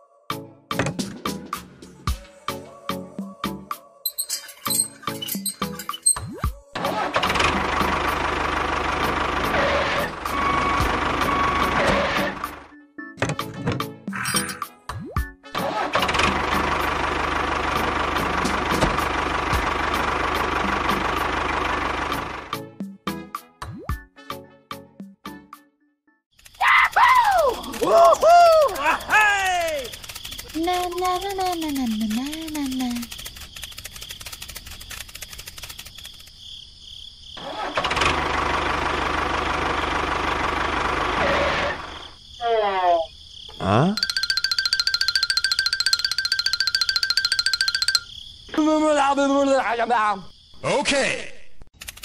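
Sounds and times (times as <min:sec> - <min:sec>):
engine running: 0:06.8 - 0:12.7, 0:15.6 - 0:22.7, 0:27.3 - 0:36.2, 0:37.4 - 0:42.0
small engine chugging: 0:16.1 - 0:22.6, 0:26.4 - 0:36.3, 0:44.0 - 0:48.1.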